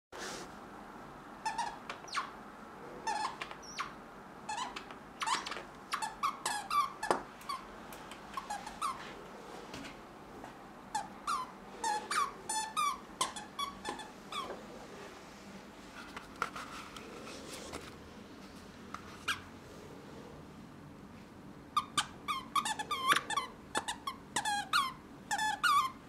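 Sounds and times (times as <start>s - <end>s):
squeaky toy squeaks: 1.4s - 2.3s, 3.0s - 7.6s, 10.9s - 14.5s, 21.8s - 26.0s.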